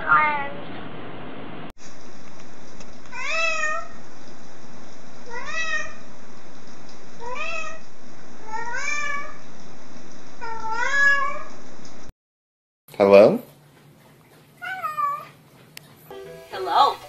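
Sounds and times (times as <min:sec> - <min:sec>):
cat meowing: 0:03.1 - 0:04.0, 0:05.3 - 0:06.0, 0:07.2 - 0:07.8, 0:08.5 - 0:09.4, 0:10.4 - 0:11.5, 0:14.6 - 0:15.4.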